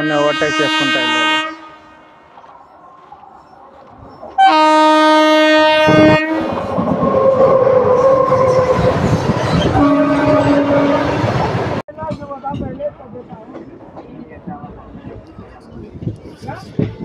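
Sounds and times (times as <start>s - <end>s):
locomotive horn blast: 0.0s - 2.2s, 4.4s - 8.9s, 9.6s - 11.4s.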